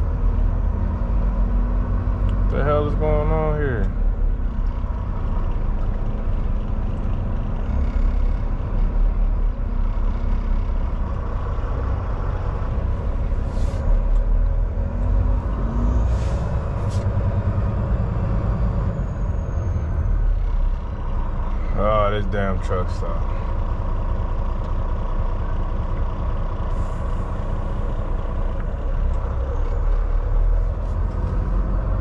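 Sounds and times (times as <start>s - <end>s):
diesel truck engine idling: 0.0s - 32.0s
air brake hisses: 13.4s - 14.0s, 16.0s - 17.1s.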